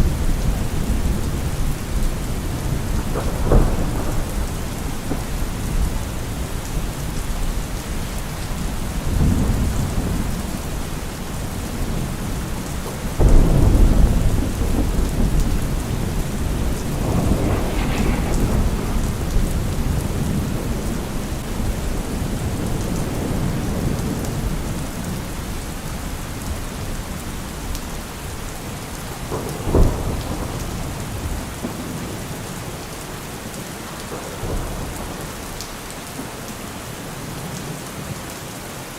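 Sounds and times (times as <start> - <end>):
rolling thunder: 0.0 - 25.6
heavy rain: 0.0 - 38.9
sharp thunderclap: 13.0 - 24.7.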